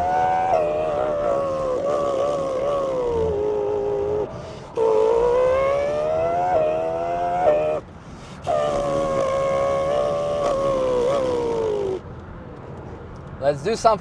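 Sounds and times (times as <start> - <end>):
man imitating racing engine: 0.0 - 12.0.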